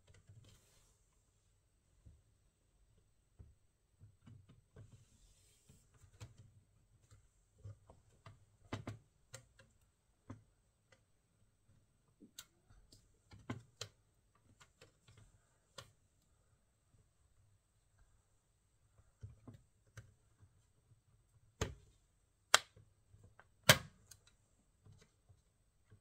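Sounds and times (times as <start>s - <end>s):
faint irregular clicks and taps: 0.0s - 0.9s, 1.9s - 26.0s.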